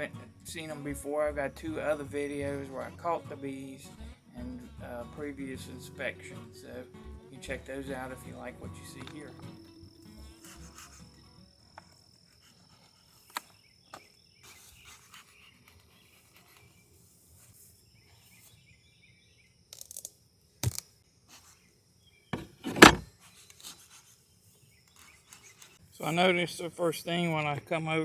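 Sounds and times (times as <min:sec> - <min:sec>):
handling knocks and bumps: 0:22.4 - 0:23.1.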